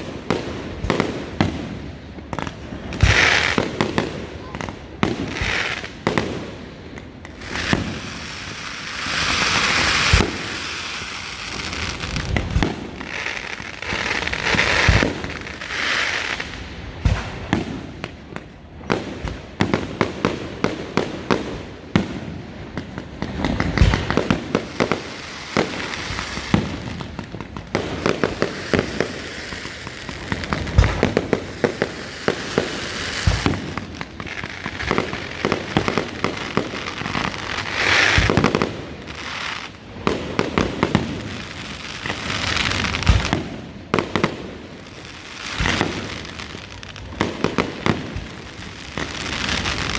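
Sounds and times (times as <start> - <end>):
fireworks hissing: 5.2 - 18.1, 23.0 - 49.9.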